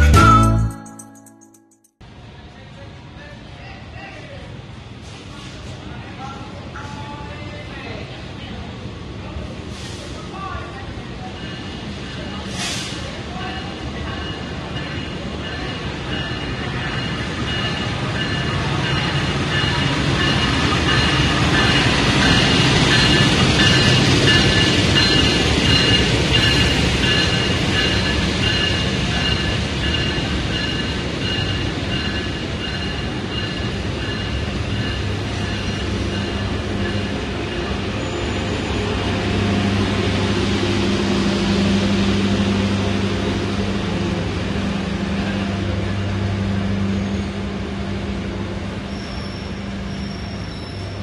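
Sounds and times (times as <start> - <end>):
train coaches rumbling: 2.2 - 51.0.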